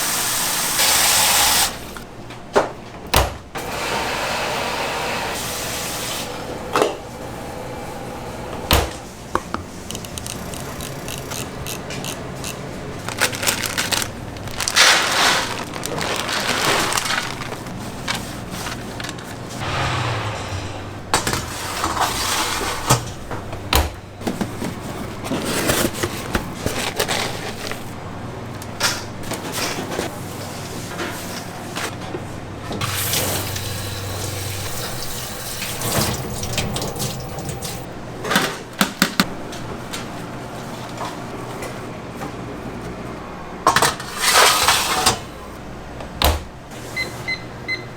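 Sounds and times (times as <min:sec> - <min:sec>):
steady low hum: 0:19.6 - 0:24.2.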